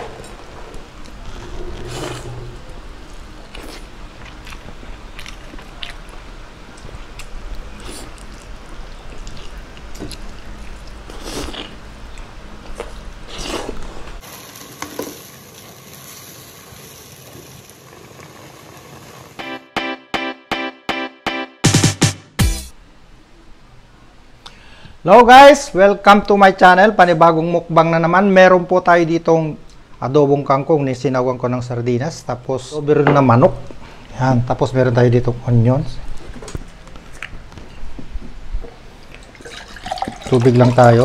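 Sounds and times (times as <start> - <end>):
biting and chewing food: 3.5 - 14.2
pot simmering: 13.8 - 19.4, 39.1 - 41.0.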